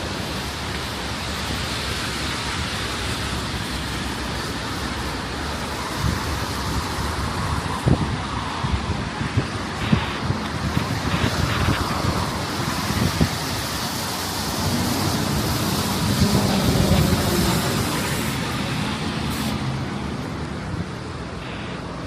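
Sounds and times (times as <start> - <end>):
traffic on wet roads: 0.0 - 22.0.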